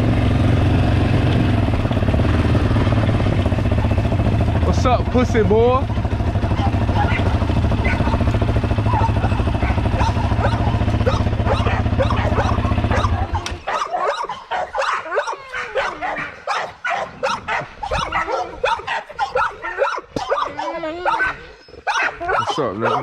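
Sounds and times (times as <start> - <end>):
engine running: 0.0 - 21.3
dogs barking excitedly: 1.0 - 23.0
dogs whining and yelping: 3.6 - 4.2, 5.8 - 23.0.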